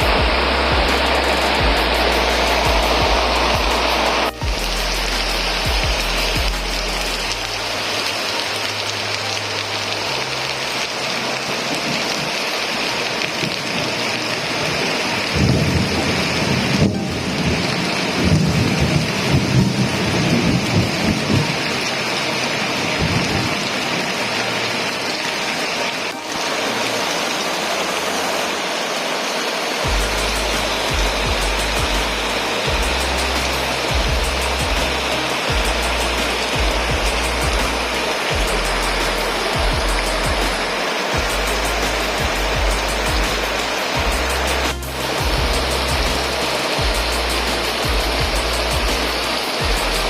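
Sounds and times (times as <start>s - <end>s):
thunder rumbling: 0.0s - 6.7s, 14.7s - 21.8s
heavy rain falling: 0.0s - 50.0s.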